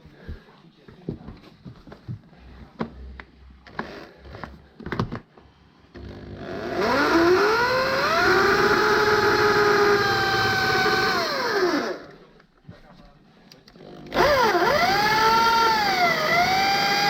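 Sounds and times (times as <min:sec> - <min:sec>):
power tool whining: 0:03.7 - 0:04.6, 0:06.0 - 0:12.2, 0:13.8 - 0:17.0.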